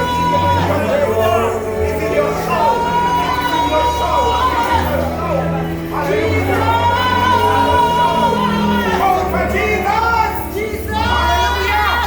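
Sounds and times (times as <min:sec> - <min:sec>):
sustained bass: 0:00.0 - 0:12.0
voices singing long notes: 0:00.0 - 0:12.0.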